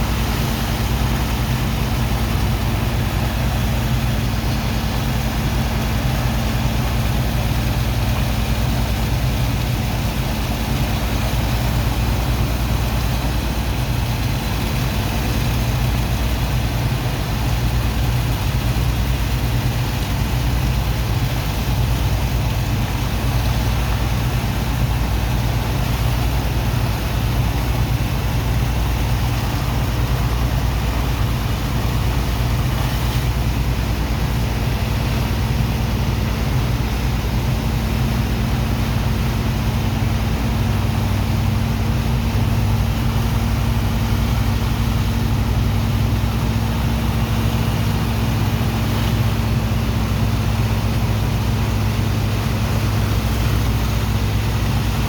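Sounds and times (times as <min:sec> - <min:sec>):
deep engine drone: 0:00.0 - 0:55.0
rushing hiss of water and sand: 0:19.5 - 0:35.7.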